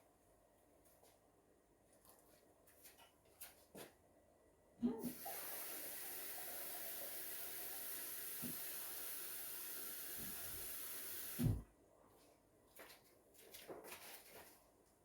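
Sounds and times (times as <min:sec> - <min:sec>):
rushing water hissing: 0:05.1 - 0:11.6.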